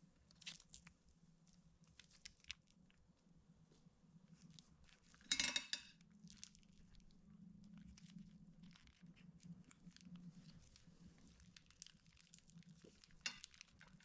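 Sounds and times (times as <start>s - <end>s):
loud crinkly rustle: 6.2s - 14.0s.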